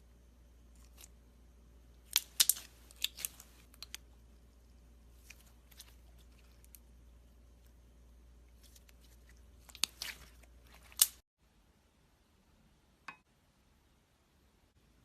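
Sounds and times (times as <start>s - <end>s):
slime popping and crackling: 2.0s - 4.0s, 9.6s - 11.2s.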